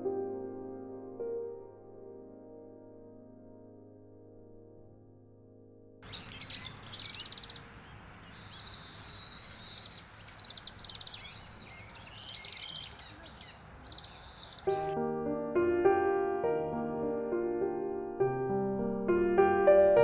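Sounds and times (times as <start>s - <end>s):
outdoor background hiss: 6.0s - 20.0s
shrill bird chirps and squeals: 6.1s - 7.7s, 8.3s - 14.7s.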